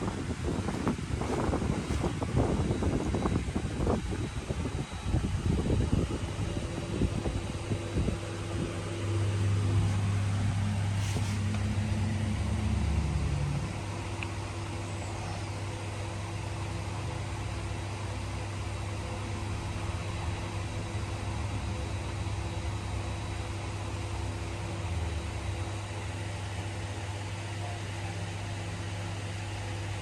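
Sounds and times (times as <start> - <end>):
vehicle engine humming: 0.0 - 4.1, 6.4 - 23.1.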